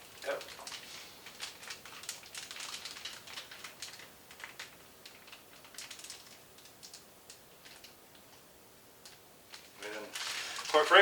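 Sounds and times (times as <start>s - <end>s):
plastic bag crinkling: 0.0s - 7.0s, 9.5s - 11.0s.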